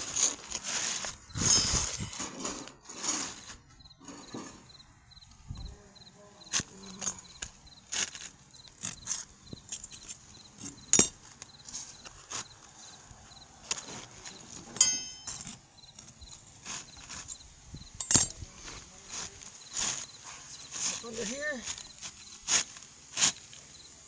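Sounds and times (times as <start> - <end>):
metallic clink: 1.4 - 2.3, 8.8 - 11.5, 14.6 - 16.5, 17.1 - 18.4
scrapes and taps on roof shingle: 18.6 - 23.7.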